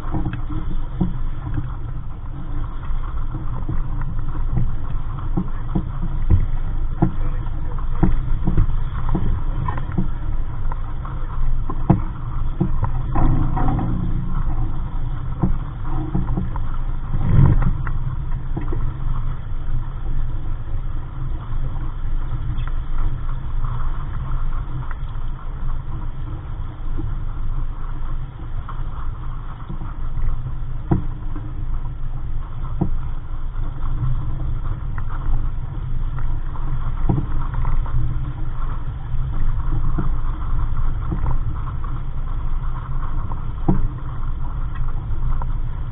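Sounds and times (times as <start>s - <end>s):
knocks and slaps on hull: 0.0s - 19.6s, 29.6s - 32.0s, 32.6s - 35.4s, 36.1s - 38.6s, 39.3s - 42.2s, 42.8s - 45.6s
wind and water rushing: 0.0s - 45.9s.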